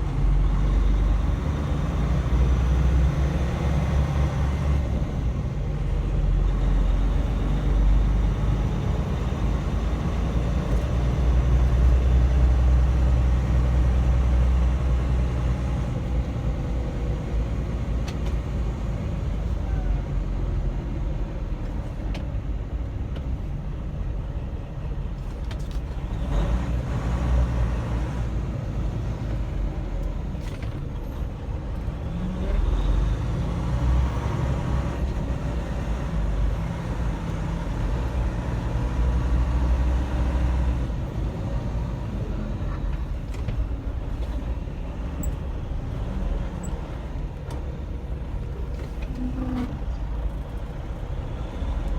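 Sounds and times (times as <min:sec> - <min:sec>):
road noise: 0:00.0 - 0:51.9
truck diesel engine rumble: 0:00.0 - 0:51.9.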